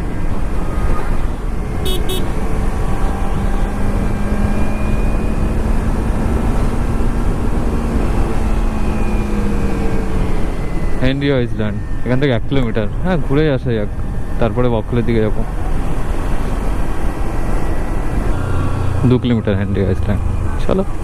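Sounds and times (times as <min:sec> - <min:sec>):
road and wind noise: 0:00.0 - 0:21.0
horn beeps: 0:01.8 - 0:02.5.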